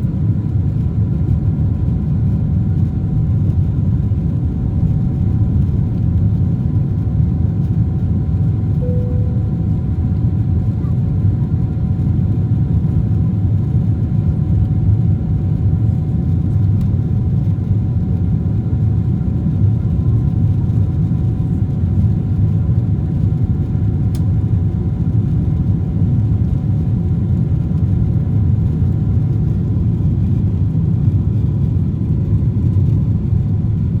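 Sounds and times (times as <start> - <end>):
jet engines rumbling in cabin: 0.0 - 34.0
faint whining tones: 8.8 - 10.0.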